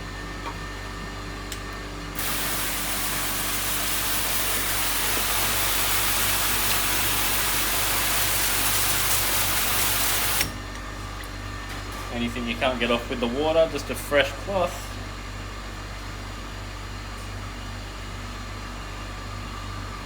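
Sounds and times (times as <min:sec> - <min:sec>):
water running at a sink: 0:02.2 - 0:10.5.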